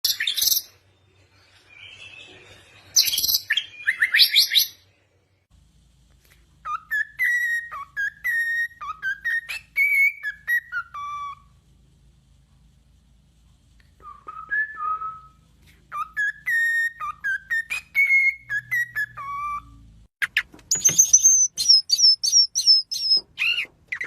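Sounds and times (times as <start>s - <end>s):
birds chirping: 14.4s - 24.0s.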